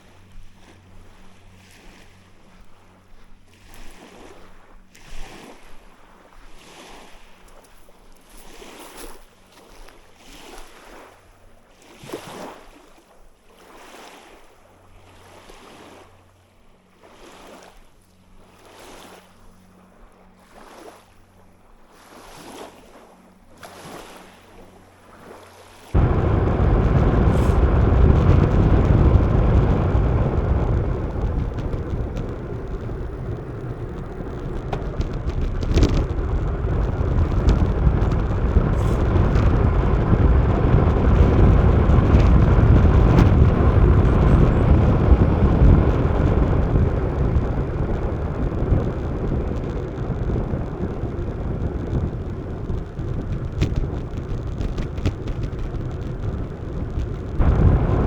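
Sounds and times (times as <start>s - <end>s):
wind buffeting microphone: 25.9s - 58.0s
road noise: 26.0s - 58.0s
sharp clicks and knocks: 29.2s - 39.6s.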